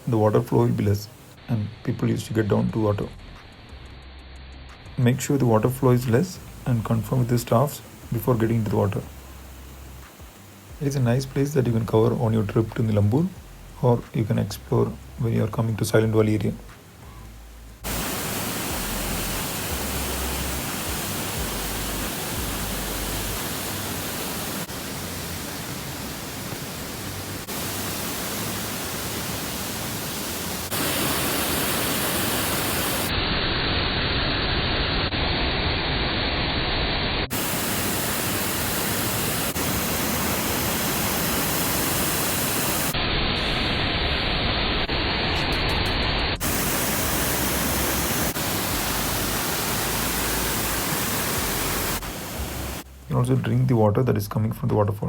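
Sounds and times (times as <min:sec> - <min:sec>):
waterfall rushing: 0:17.8 - 0:33.1, 0:37.3 - 0:43.8, 0:46.4 - 0:53.1.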